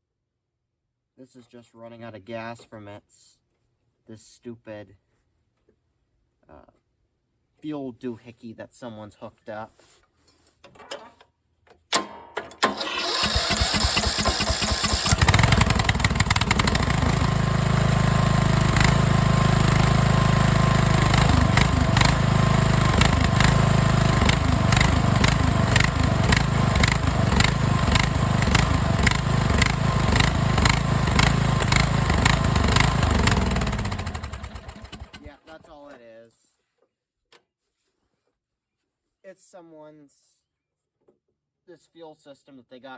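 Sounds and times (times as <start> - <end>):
small engine cranking and running: 12.6 - 35.4.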